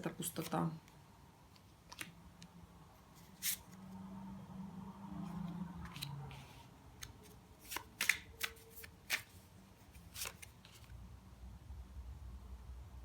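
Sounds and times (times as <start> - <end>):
cards snapping and slapping: 7.0 - 9.4.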